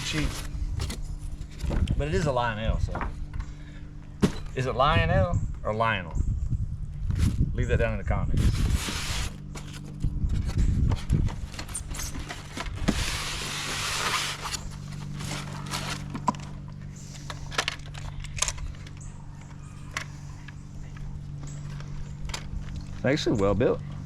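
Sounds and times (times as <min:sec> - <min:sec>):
steady low hum: 0:00.0 - 0:24.0
packaging rustling: 0:11.3 - 0:16.6.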